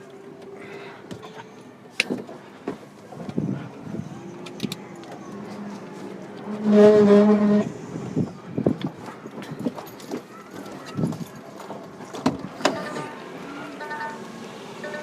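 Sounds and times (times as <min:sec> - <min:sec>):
loud steady pitched tone: 0:13.8 - 0:15.0.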